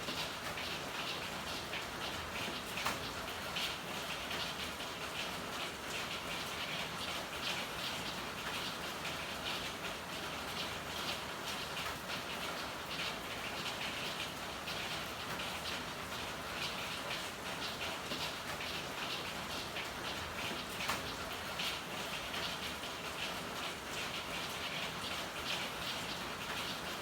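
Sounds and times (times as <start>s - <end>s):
steady rain hiss: 0.0s - 27.0s.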